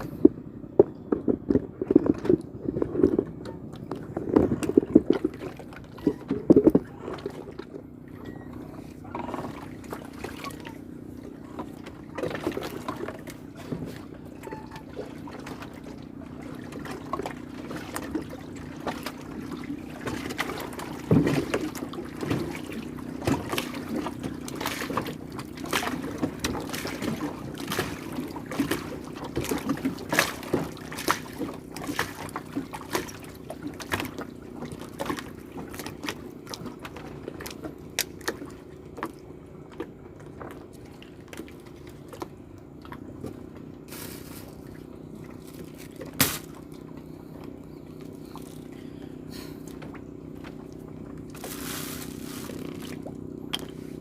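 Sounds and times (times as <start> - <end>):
steady low hum: 0.0 - 54.0
water splashing and dribbling: 0.0 - 54.0.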